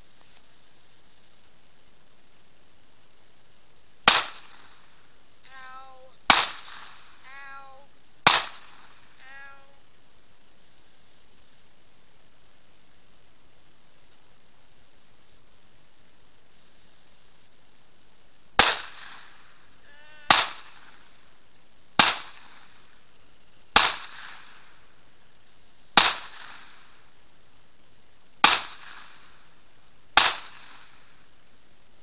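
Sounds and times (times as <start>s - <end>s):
rifle shots with echo: 4.1s - 4.6s, 8.3s - 8.9s, 18.6s - 19.3s.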